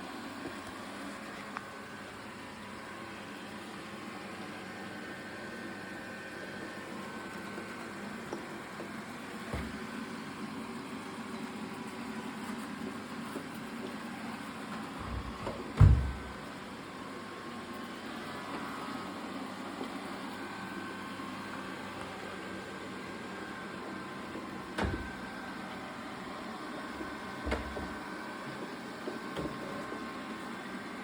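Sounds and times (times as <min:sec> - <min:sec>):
robot vacuum humming: 0:04.8 - 0:10.8, 0:13.9 - 0:31.0.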